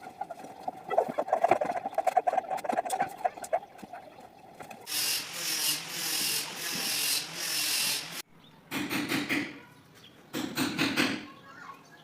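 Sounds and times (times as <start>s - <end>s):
wood being sanded: 4.8s - 8.2s.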